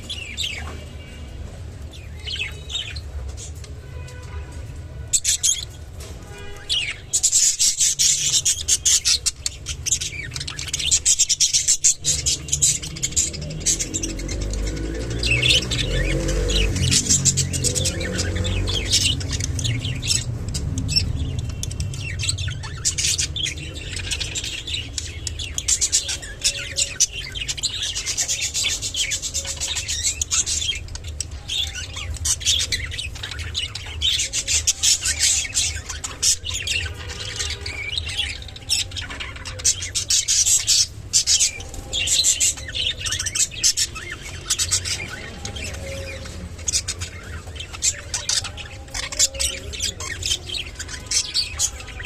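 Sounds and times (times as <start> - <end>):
budgerigars chirping and squawking: 0.0 - 4.3, 5.1 - 52.0.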